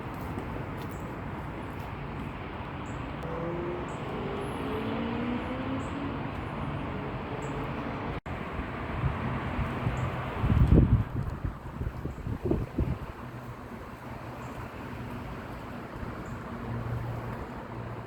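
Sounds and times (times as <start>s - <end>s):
distant road traffic: 0.0s - 18.0s
vehicle engine passing: 3.2s - 8.2s
wind on microphone: 8.6s - 13.5s.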